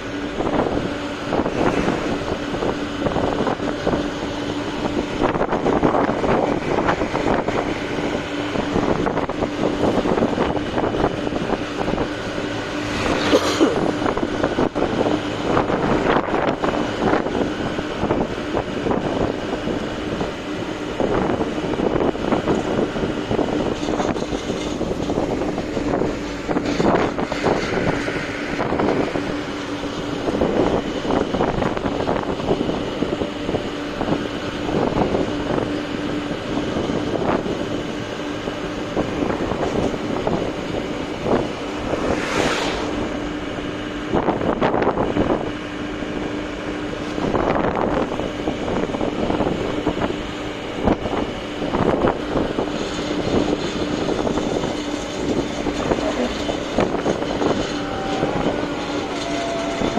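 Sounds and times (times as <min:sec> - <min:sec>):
road rumble: 0:00.0 - 0:59.9
rush of noise: 0:00.0 - 0:59.9
truck engine drone: 0:00.0 - 0:59.9
wind noise: 0:00.0 - 0:59.9.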